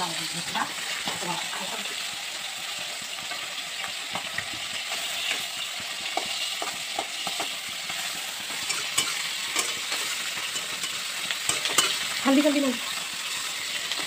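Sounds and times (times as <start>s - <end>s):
onions sizzling in hot oil: 0.0s - 14.0s
steel spatula scraping a wok: 4.6s - 14.0s.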